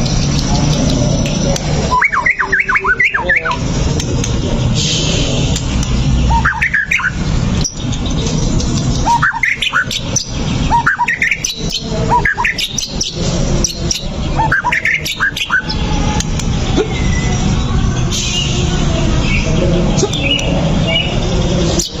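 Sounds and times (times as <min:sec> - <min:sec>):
scattered clicks: 0:00.0 - 0:02.1, 0:03.4 - 0:04.6, 0:05.4 - 0:06.0, 0:07.6 - 0:09.0, 0:15.0 - 0:16.6
bird singing whistled phrases: 0:01.9 - 0:03.6, 0:06.2 - 0:07.8, 0:09.0 - 0:17.3.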